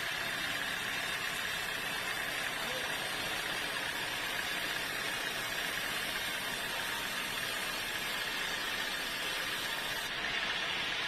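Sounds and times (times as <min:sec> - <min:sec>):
sawmill machinery running: 0:00.0 - 0:11.0.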